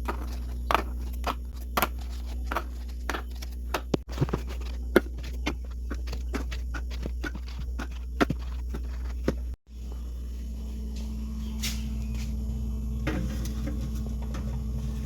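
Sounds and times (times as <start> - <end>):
objects knocking and clicking: 0.0 - 9.6
steady low hum: 0.0 - 15.0.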